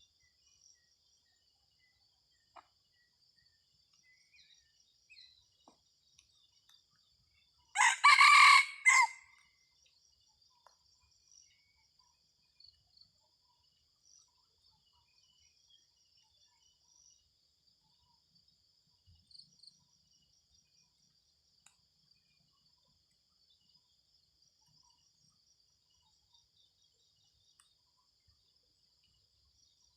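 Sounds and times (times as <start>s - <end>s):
insects droning: 0.0s - 29.9s
rooster crowing: 7.8s - 9.3s.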